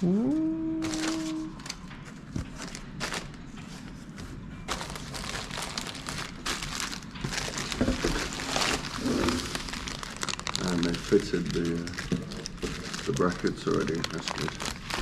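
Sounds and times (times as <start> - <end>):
packaging crinkling and rustling: 0.8 - 15.0.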